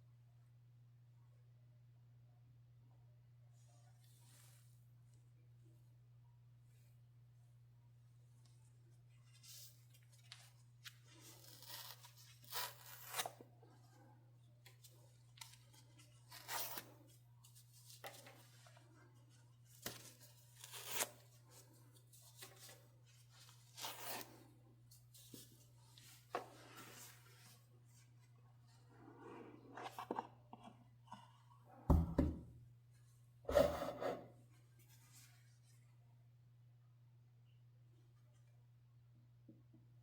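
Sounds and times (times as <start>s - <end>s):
faint steady hum: 0.0s - 40.0s
tearing seal tape: 11.3s - 13.4s.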